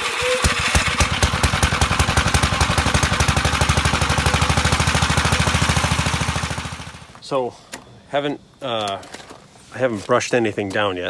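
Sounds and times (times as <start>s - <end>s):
small engine running: 0.0s - 7.1s.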